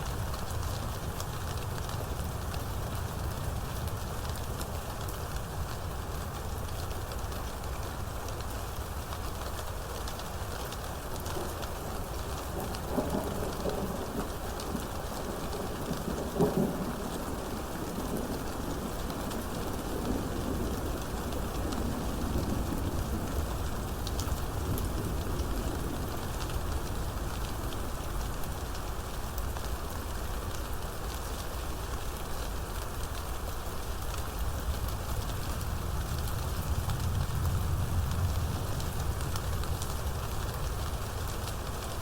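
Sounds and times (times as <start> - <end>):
steady rain falling: 0.0 - 42.0
thunder rumbling: 11.4 - 28.4.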